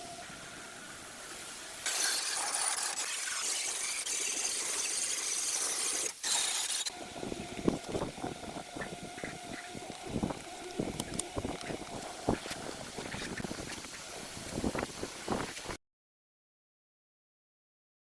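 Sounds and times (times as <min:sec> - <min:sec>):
steady whine: 0:06.1 - 0:15.7.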